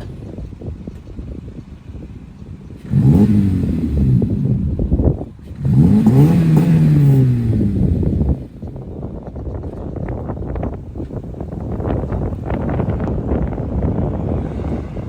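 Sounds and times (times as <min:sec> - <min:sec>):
car engine idling and revving: 0:01.8 - 0:08.8, 0:10.0 - 0:15.0.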